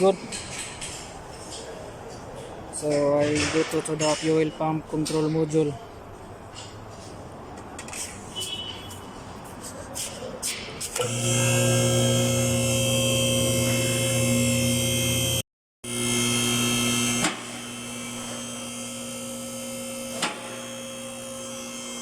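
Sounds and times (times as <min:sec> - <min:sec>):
small electric motor whining: 0:11.0 - 0:22.0.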